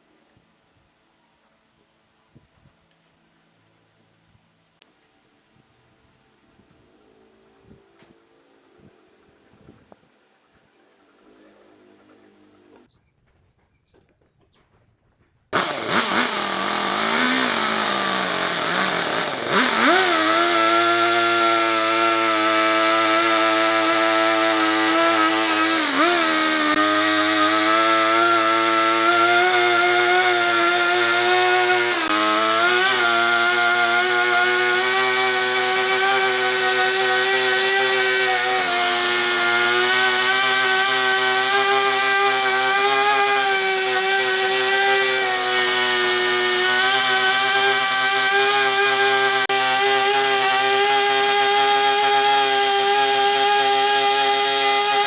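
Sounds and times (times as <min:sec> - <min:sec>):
power tool motor cutting wood: 0:15.6 - 0:55.0.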